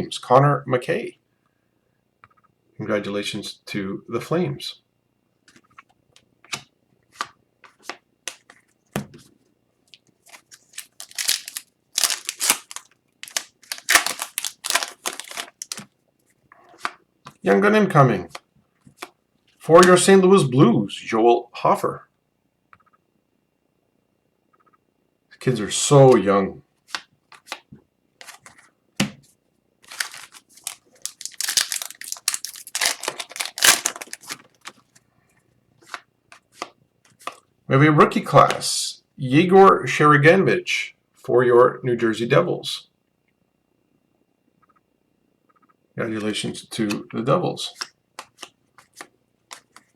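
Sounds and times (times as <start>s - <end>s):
foil pack crinkling: 10.0s - 15.9s, 29.8s - 35.0s.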